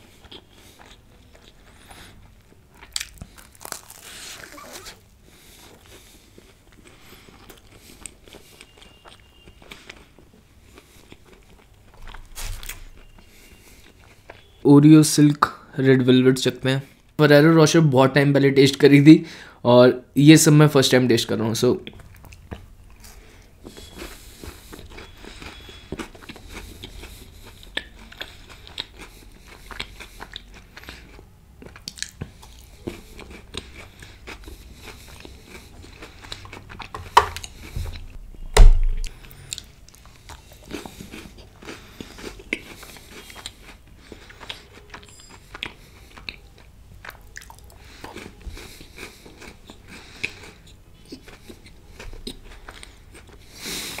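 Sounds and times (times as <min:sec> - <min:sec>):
chewing crunchy chocolate: 0:00.0 - 0:14.6, 0:21.8 - 0:38.2, 0:39.0 - 0:54.0
loud knocks: 0:38.6 - 0:39.1.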